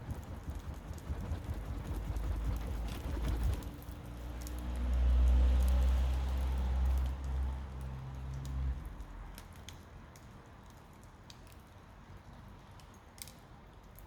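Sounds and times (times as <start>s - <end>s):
low steady hum: 0.0s - 3.7s.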